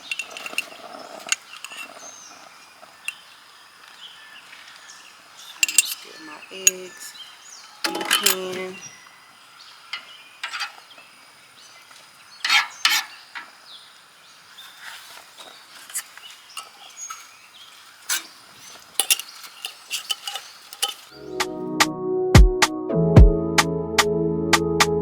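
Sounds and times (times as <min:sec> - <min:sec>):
metal utensil scraping frying pan: 0:00.0 - 0:03.2, 0:05.4 - 0:07.1, 0:07.8 - 0:08.8, 0:10.0 - 0:11.0, 0:12.4 - 0:13.6, 0:14.6 - 0:21.2.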